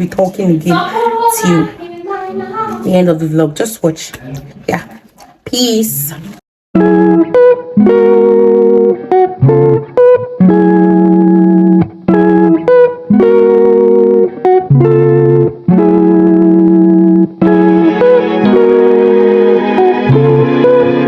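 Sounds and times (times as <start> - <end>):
plucked guitar chords: 6.8 - 21.0.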